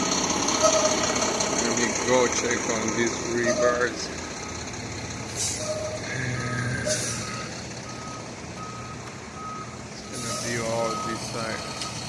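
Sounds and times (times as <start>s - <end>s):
diesel engine humming: 0.0s - 12.0s
truck reversing alarm beeping: 0.0s - 12.0s.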